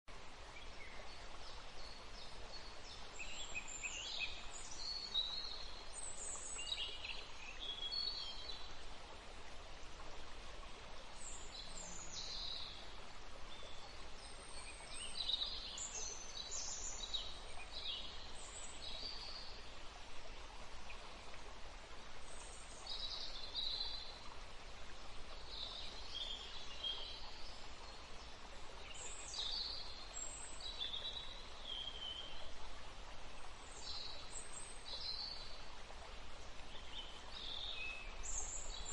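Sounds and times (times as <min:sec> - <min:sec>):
steady background hiss: 0:00.1 - 0:38.9
songbirds singing: 0:11.2 - 0:19.9, 0:25.0 - 0:32.6, 0:33.4 - 0:38.9.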